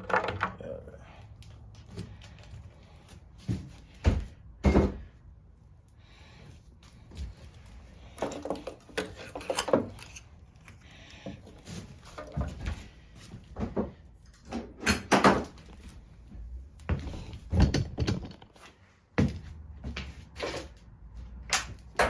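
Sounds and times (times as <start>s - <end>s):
tools and hard parts rattling: 0.0s - 1.0s, 7.4s - 12.8s, 13.6s - 15.9s, 17.0s - 18.6s.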